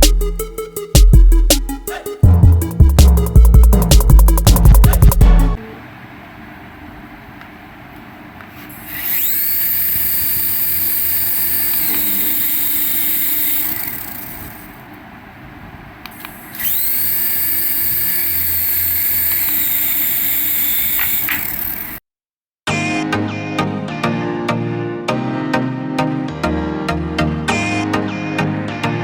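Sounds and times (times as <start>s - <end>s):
small electric toy motor whining: 8.7s - 14.8s, 16.2s - 22.0s.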